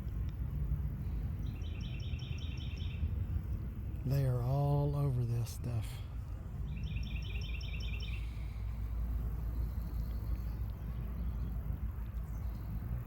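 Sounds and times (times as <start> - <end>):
low outdoor rumble: 0.0 - 13.0
small bird chirping: 1.4 - 3.1, 6.6 - 8.8.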